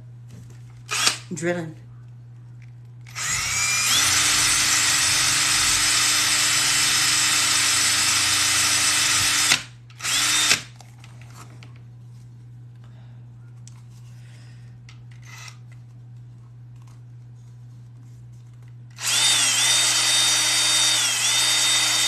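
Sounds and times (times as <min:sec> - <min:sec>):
electric drill boring through leather: 0:03.1 - 0:10.6, 0:19.0 - 0:22.0.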